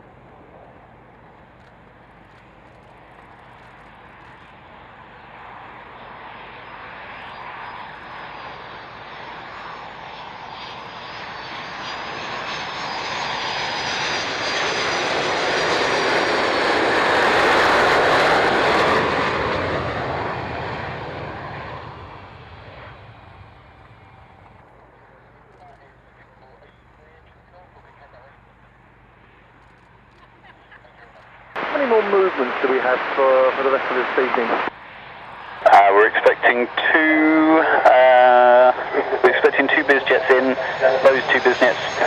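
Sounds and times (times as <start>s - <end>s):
aircraft engines passing: 0.0s - 42.0s.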